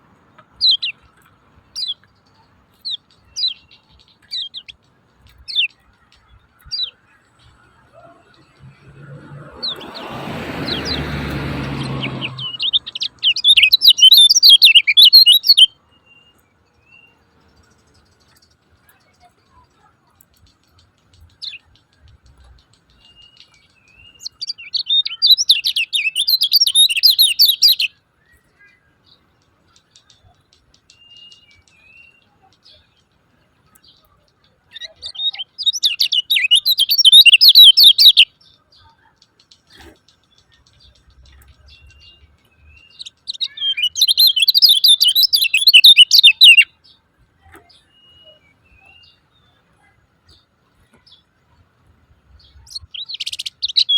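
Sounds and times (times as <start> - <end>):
bird high-pitched chattering: 11.8 - 15.7, 17.7 - 27.9, 33.8 - 46.8, 52.5 - 53.9.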